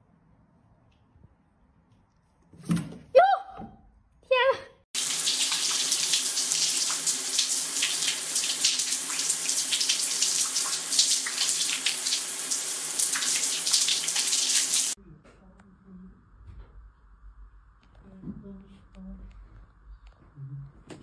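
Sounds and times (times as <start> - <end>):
running water: 5.0 - 15.0.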